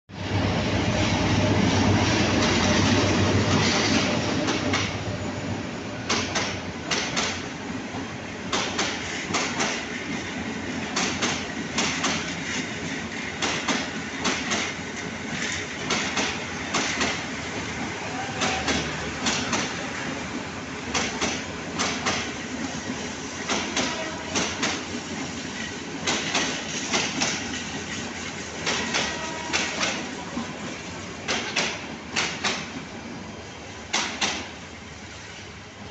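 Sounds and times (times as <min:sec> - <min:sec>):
steady train rumble: 0:00.1 - 0:35.9
train wheels clicking over rail joints: 0:02.3 - 0:05.0, 0:06.0 - 0:07.5, 0:08.4 - 0:17.4, 0:18.4 - 0:19.9, 0:20.9 - 0:30.5, 0:31.2 - 0:32.9, 0:33.9 - 0:34.6.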